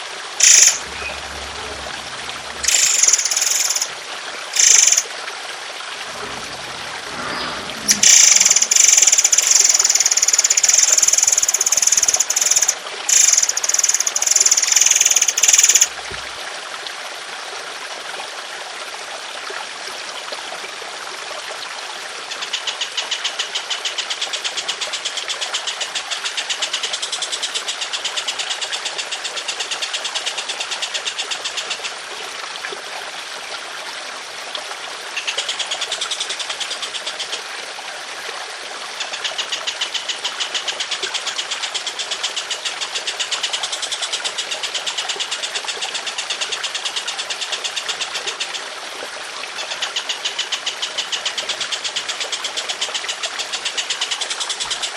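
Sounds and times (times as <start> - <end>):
trickle of running water: 0.0 - 54.9
bird rough rattling calls: 0.4 - 3.9, 4.6 - 5.0, 6.1 - 16.0.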